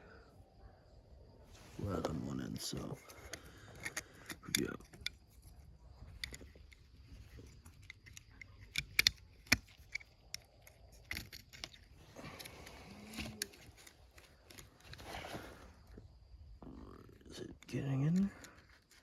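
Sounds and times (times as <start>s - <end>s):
small metal parts clicking: 2.6s - 15.0s, 17.3s - 19.0s.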